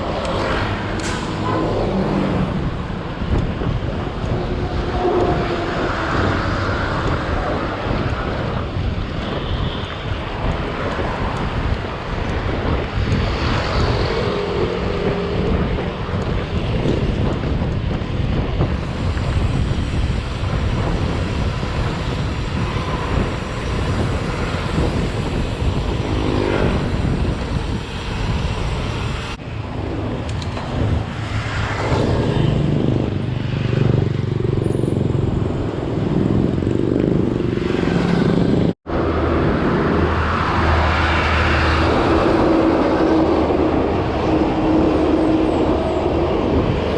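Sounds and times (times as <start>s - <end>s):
road traffic passing: 0.0s - 46.9s
wind rushing over microphone: 0.0s - 46.9s.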